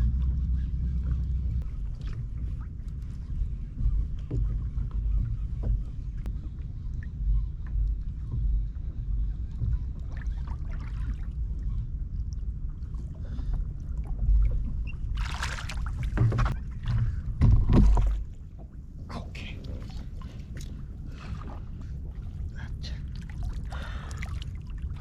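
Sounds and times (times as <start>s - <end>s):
low rumble: 0.0s - 25.0s
water noise: 0.0s - 25.0s
water splash: 15.2s - 16.5s.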